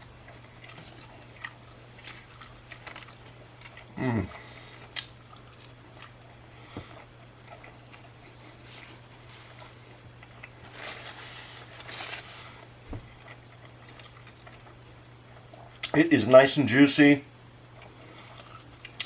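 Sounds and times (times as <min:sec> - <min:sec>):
wet chewing: 0:00.0 - 0:10.7
low steady hum: 0:00.0 - 0:19.0.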